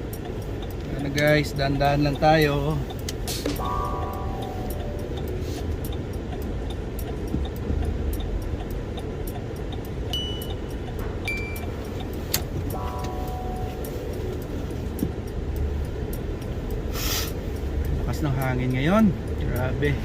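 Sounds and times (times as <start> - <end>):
car engine and road rumble: 0.0 - 20.0
faint ticks: 4.7 - 11.0.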